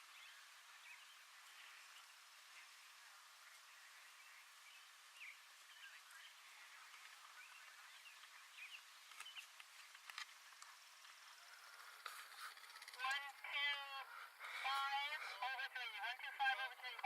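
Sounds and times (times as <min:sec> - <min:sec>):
faint bird chirps: 0:00.0 - 0:15.5
faint clicks: 0:09.0 - 0:13.4.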